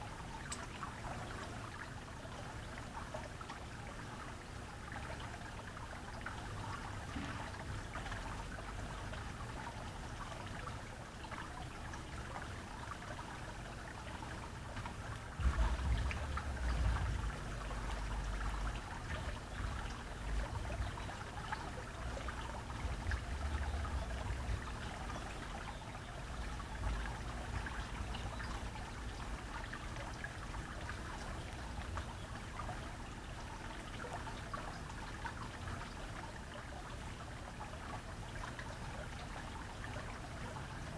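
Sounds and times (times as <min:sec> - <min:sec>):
water trickling: 0:00.0 - 0:40.9
low rumble: 0:15.4 - 0:20.9.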